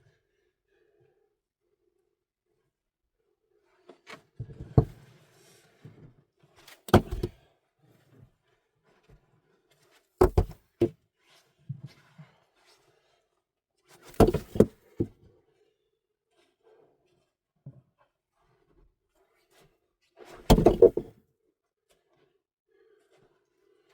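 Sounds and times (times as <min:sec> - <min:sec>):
heavy knocks: 0:20.5 - 0:21.1.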